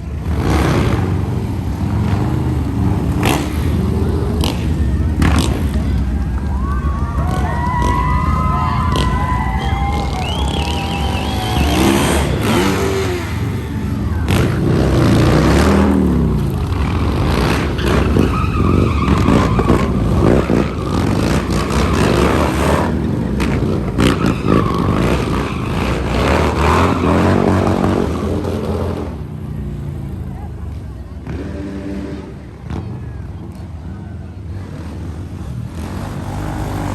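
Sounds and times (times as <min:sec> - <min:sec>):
motocross engines revving: 0:00.0 - 0:33.8, 0:34.4 - 0:36.9
busy background noise: 0:00.0 - 0:36.9.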